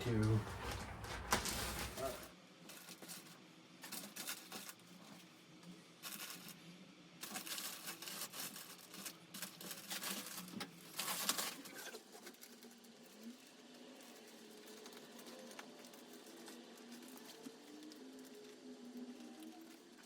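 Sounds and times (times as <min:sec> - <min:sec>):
upholstery rustling and scraping: 0:00.0 - 0:02.3.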